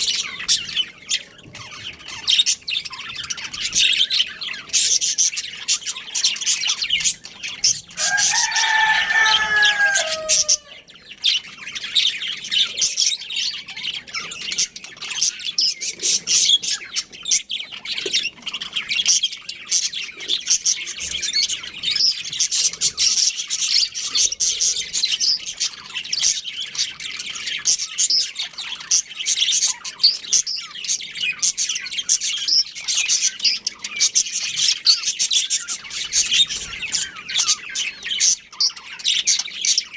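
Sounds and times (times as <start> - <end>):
budgerigars chirping: 0.0 - 39.9
drawn-out falling bird call: 8.0 - 10.8.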